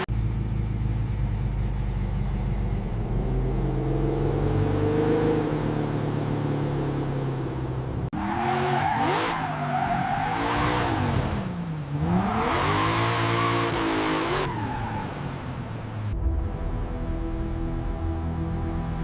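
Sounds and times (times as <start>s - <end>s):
tires squealing: 8.2s - 11.2s, 12.1s - 15.3s.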